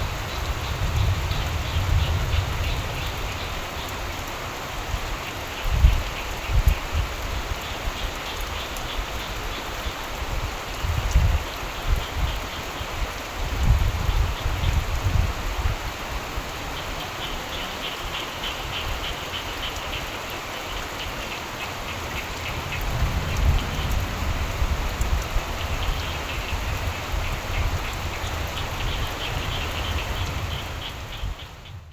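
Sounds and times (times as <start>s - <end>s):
steady rain falling: 0.0s - 31.9s
frogs croaking: 0.1s - 4.3s, 16.4s - 31.9s
low rumbles: 22.0s - 27.1s.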